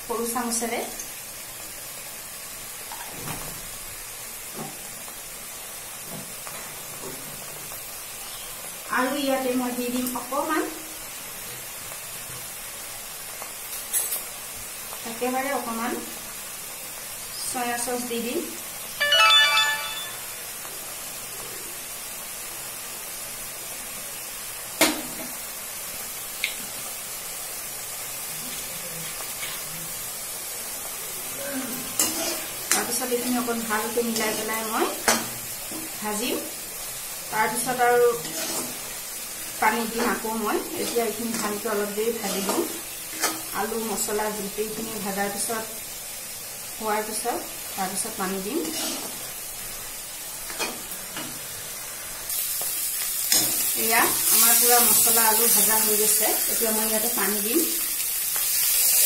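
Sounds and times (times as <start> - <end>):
food sizzling in a wok: 0.0 - 59.0
spatula scraping: 31.9 - 33.3, 38.2 - 38.8, 48.6 - 49.2.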